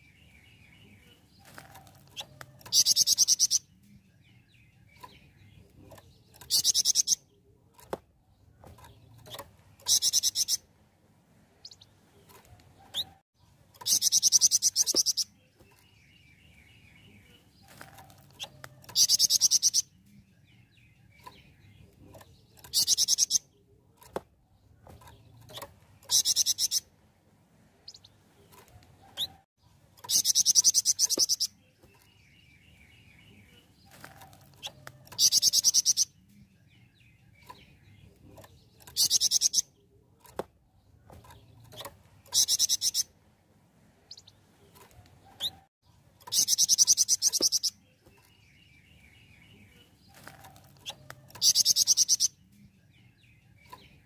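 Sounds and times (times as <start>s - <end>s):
soft bird chirps: 0.0s - 10.7s, 11.5s - 26.9s, 27.7s - 43.2s, 43.9s - 54.0s.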